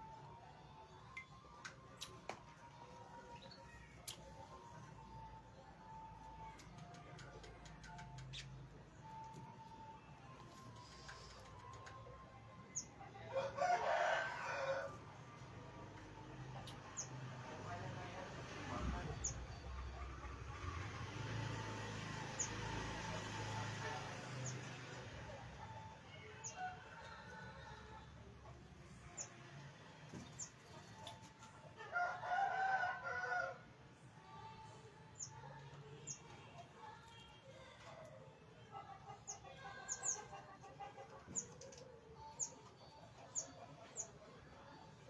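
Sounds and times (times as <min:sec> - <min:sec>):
rooster crowing: 0:13.3 - 0:15.0, 0:31.9 - 0:33.6.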